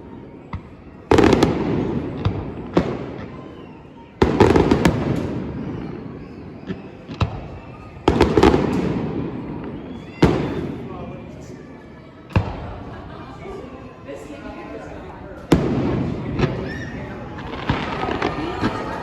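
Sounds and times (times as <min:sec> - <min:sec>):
fireworks bursting: 0:00.0 - 0:11.0, 0:12.3 - 0:13.4, 0:15.5 - 0:19.0.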